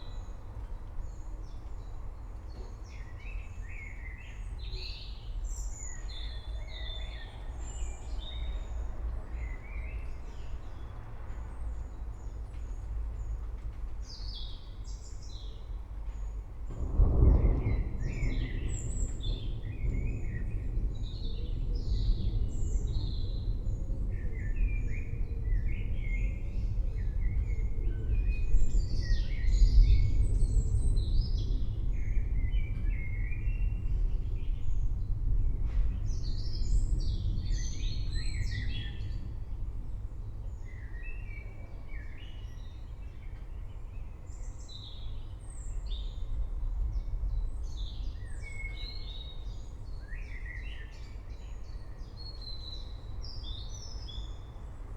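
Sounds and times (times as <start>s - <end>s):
distant thunder rumble: 15.0s - 54.9s.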